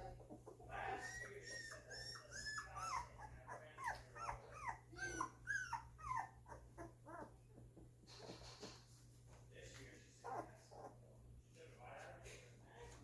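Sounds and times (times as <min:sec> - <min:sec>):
puppies whimpering: 0:00.0 - 0:07.8, 0:10.2 - 0:11.0.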